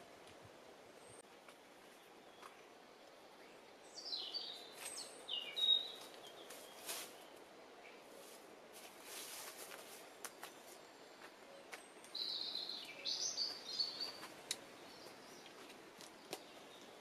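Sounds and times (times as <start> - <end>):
faint outdoor hiss: 0.0 - 17.0
songbird chirping: 0.0 - 17.0
footsteps and handling clicks: 14.1 - 17.0.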